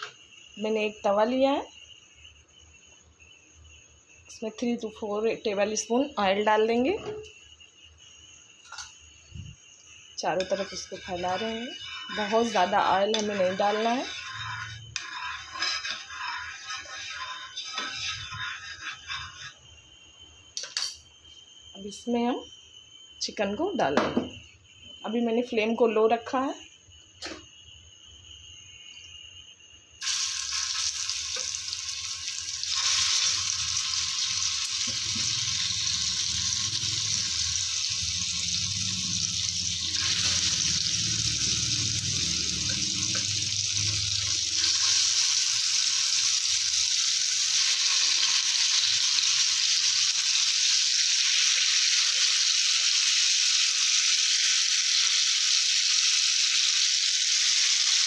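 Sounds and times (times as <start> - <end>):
chicken sizzling in hot oil: 8.6 - 19.6, 30.0 - 58.0.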